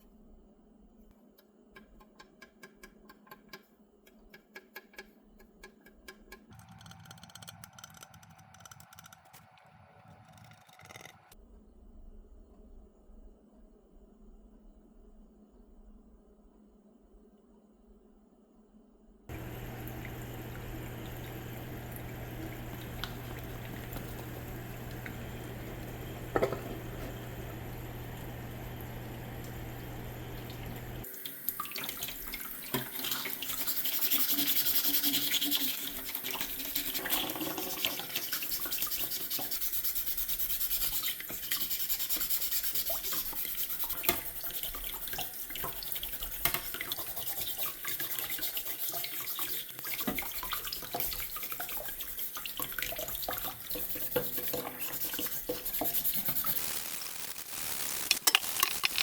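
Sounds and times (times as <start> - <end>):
steady low hum: 19.3 - 31.0
tap water running into sink: 19.3 - 56.6
rubbing and scrubbing: 33.0 - 56.7.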